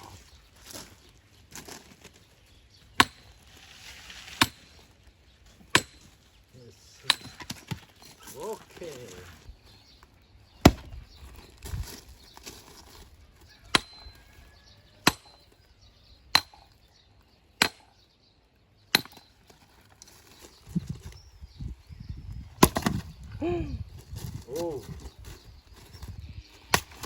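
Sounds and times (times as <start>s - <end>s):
metal strikes splitting firewood: 2.9s - 3.4s, 4.2s - 4.9s, 5.5s - 6.2s, 7.0s - 8.2s, 10.6s - 11.0s, 13.7s - 14.2s, 15.0s - 15.6s, 16.2s - 16.8s, 17.5s - 18.0s, 18.9s - 19.4s, 22.6s - 23.1s, 26.6s - 27.0s.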